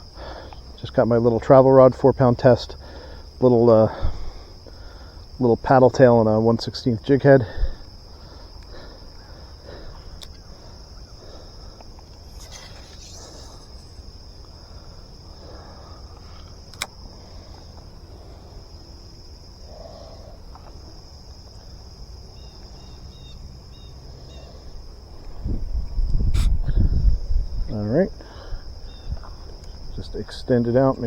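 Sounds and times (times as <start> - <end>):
crickets trilling: 0.0 - 31.0
sharp click: 16.7 - 17.0.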